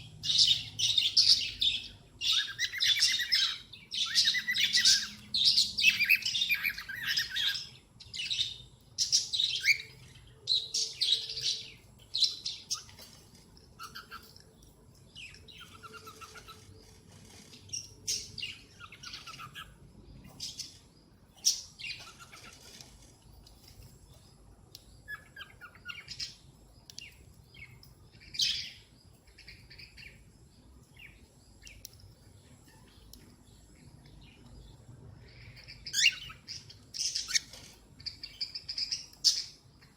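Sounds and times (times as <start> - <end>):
cockatiel chirping: 18.8 - 19.8.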